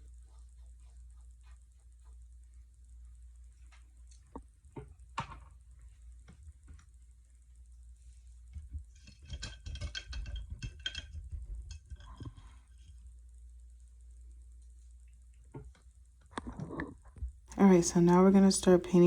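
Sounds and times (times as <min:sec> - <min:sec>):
rapid clattering and rattling: 0:08.8 - 0:13.0.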